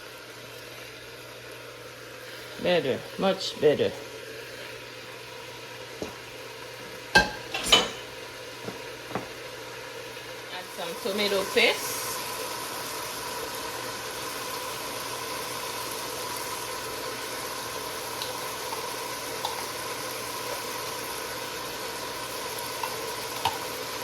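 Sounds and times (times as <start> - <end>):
meat sizzling in a pot: 0.0 - 24.0.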